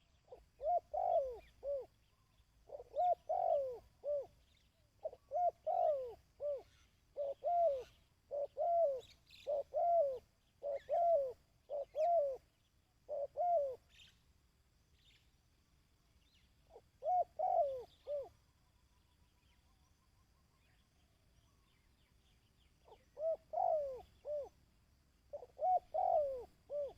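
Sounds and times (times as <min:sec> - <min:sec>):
dove cooing: 0:00.0 - 0:14.1, 0:16.6 - 0:18.4, 0:22.8 - 0:24.6, 0:25.3 - 0:26.9.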